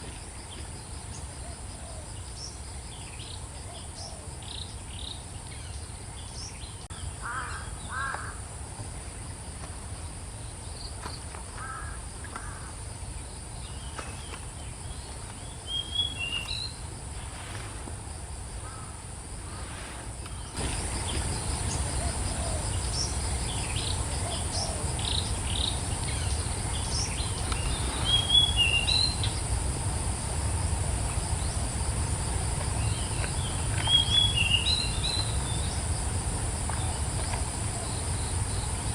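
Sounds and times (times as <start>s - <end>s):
high insect drone: 0.0s - 38.9s
birds chirping: 20.4s - 29.5s.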